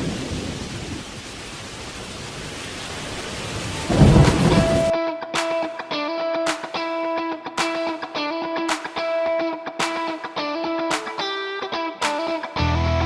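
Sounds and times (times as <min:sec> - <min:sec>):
steady rain: 0:00.0 - 0:04.9
thunder rumble: 0:00.0 - 0:04.9
electric guitar music: 0:03.9 - 0:13.0.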